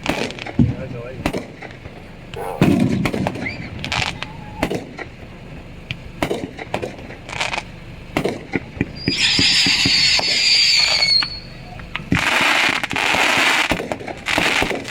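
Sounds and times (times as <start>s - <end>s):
firecrackers banging: 0.0s - 14.9s
firework whistling: 2.3s - 5.3s, 6.2s - 14.9s.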